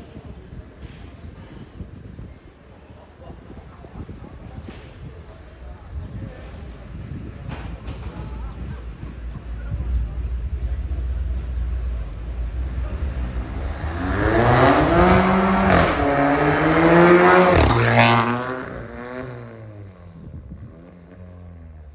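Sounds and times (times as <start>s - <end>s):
car engine accelerating hard: 10.4s - 20.0s.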